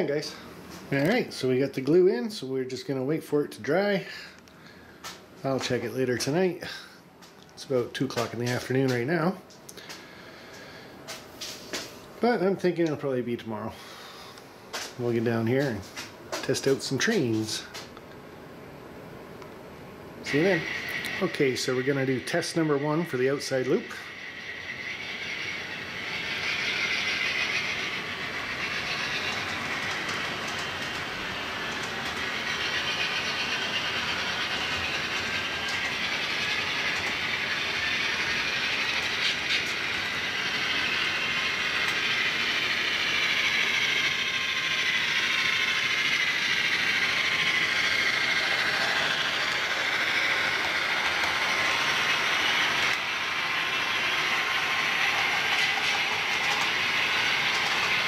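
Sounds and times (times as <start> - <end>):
model train wheels clicking on rails: 7.9 - 11.9, 20.2 - 58.0
small motor whirring: 20.3 - 58.0.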